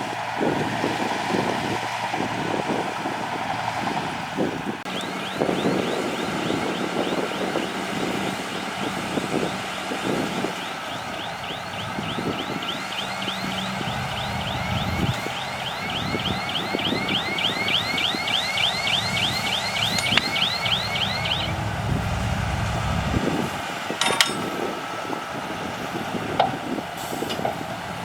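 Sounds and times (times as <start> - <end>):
heavy machinery engine rumble: 0.0 - 28.0
high curved chirps: 10.5 - 21.7.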